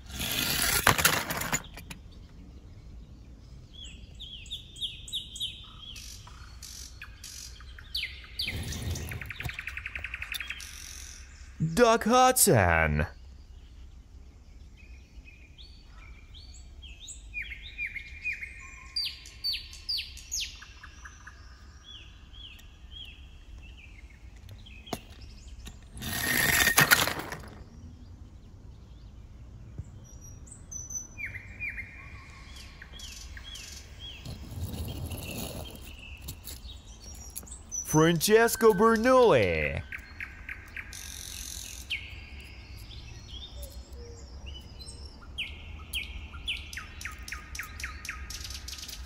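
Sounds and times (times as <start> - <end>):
toy car rolling down wooden ramp: 0.0 - 2.0, 25.7 - 27.7, 34.2 - 36.6
birds chirping: 27.7 - 41.0.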